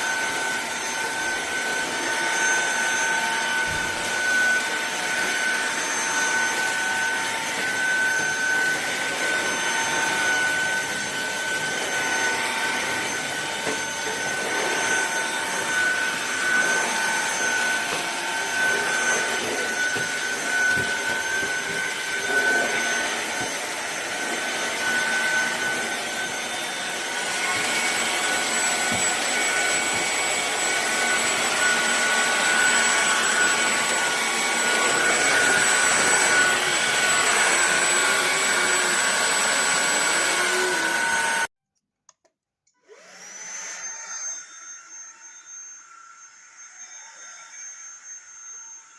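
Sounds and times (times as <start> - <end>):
stick vacuum cleaner running: 0.0 - 41.5, 42.8 - 45.0.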